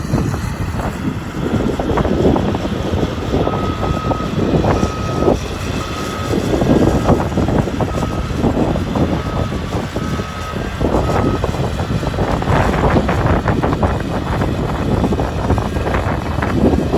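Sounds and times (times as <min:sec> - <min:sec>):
excavator diesel engine: 0:00.0 - 0:16.9
warning alarm beeping: 0:02.9 - 0:11.6.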